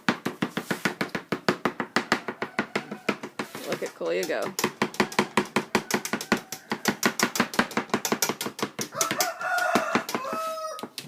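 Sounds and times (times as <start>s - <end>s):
knife chopping on cutting board: 0.1s - 11.0s
rooster crowing: 2.2s - 3.2s, 5.7s - 7.0s, 8.9s - 10.9s.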